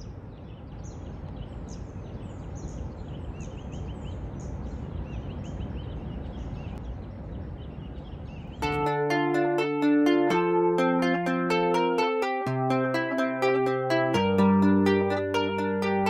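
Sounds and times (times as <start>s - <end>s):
small birds chirping: 0.0s - 8.7s.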